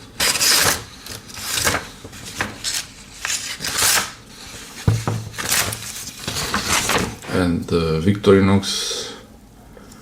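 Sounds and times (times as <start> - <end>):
knife tearing through paper: 0.2 - 0.8, 1.4 - 4.2.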